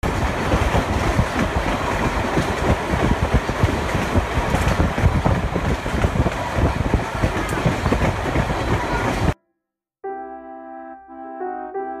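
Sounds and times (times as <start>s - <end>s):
train rumbling and rattling: 0.0s - 9.4s.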